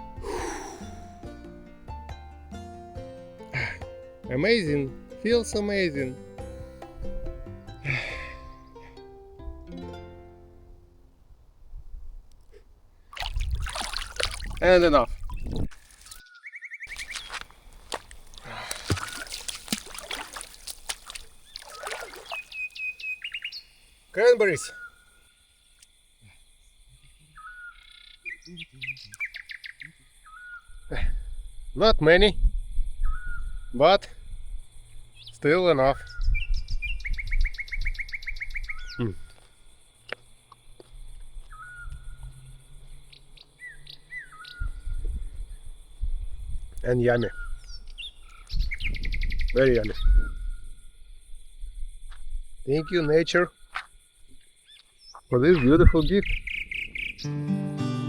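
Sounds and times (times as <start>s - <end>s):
small birds chirping: 14.6s - 18.4s, 19.0s - 31.8s, 33.0s - 50.8s, 52.0s - 57.5s
low rumble on microphone: 44.6s - 46.8s.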